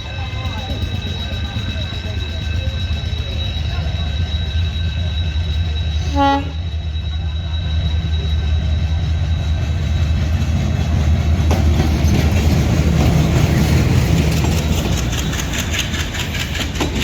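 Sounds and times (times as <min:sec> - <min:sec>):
train wheels clattering on rails: 0:00.0 - 0:06.1, 0:07.9 - 0:17.0
diesel train engine rumble: 0:00.0 - 0:17.0
train horn blast: 0:06.0 - 0:06.7.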